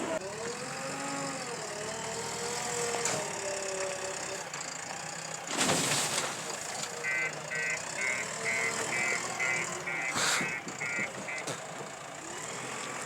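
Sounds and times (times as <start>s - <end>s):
reversing alarm beeping: 7.0s - 11.5s.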